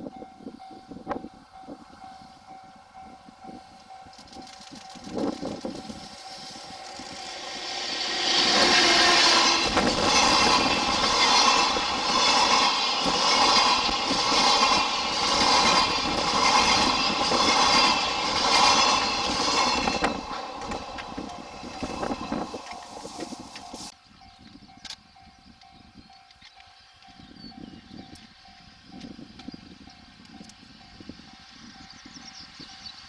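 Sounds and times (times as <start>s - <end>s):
electric locomotive passing: 0.0s - 33.0s
wheel clatter over rail joints: 4.1s - 23.9s.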